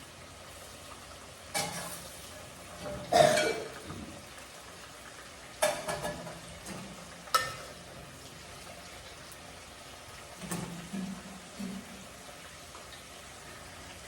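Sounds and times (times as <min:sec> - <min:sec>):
food sizzling in a pan: 0:00.0 - 0:14.0
utensil clattering against pan: 0:05.6 - 0:07.7.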